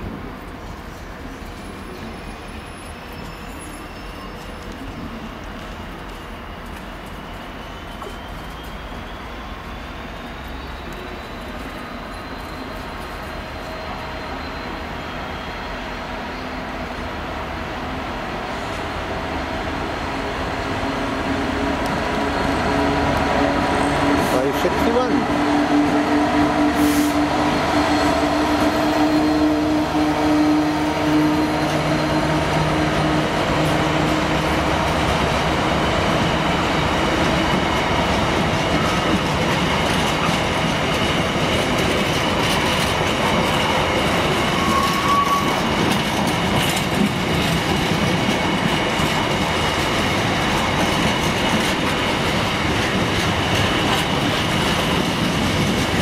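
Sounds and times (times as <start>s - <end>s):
diesel locomotive engine drone: 0.0s - 56.0s
high-pitched wheel squeal: 1.9s - 5.1s, 7.3s - 16.6s, 26.8s - 32.6s, 44.4s - 45.8s
wheel-on-rail rumble and clatter: 31.6s - 56.0s.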